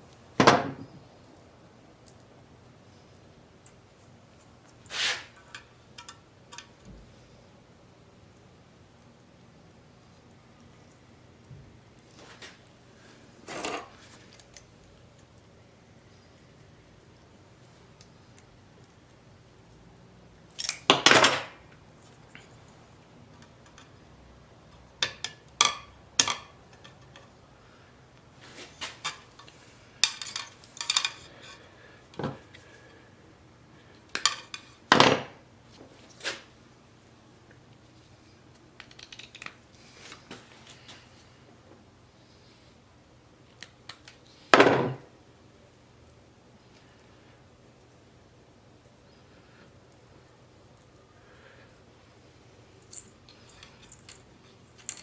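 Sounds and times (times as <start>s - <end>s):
faint steady hum: 0.0s - 55.0s
metal tools clinking: 28.8s - 31.6s, 52.9s - 55.0s.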